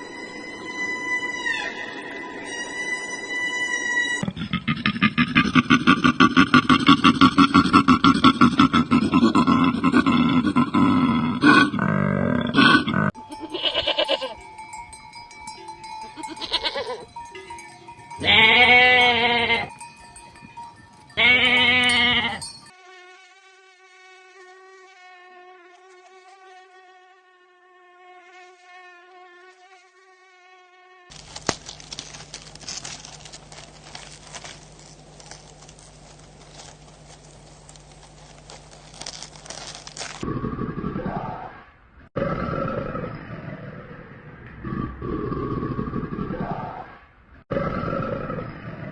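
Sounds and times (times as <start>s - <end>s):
loud wavering animal calls: 11.4s - 22.7s.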